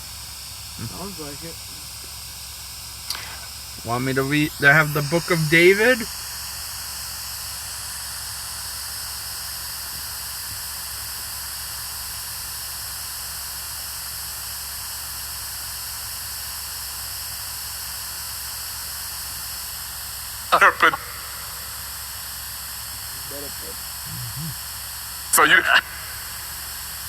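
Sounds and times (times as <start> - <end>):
static hiss: 0.0 - 6.4, 20.5 - 27.0
faint low hum: 0.7 - 2.4, 3.1 - 6.2, 20.5 - 24.7.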